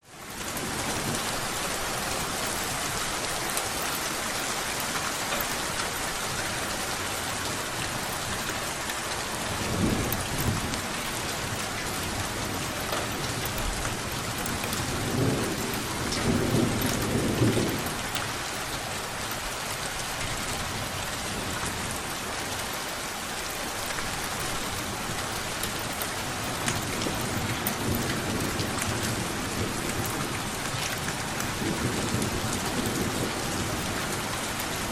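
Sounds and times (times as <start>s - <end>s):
steady rain falling: 0.0s - 34.9s
thunder rumbling: 9.2s - 18.5s, 24.6s - 34.9s.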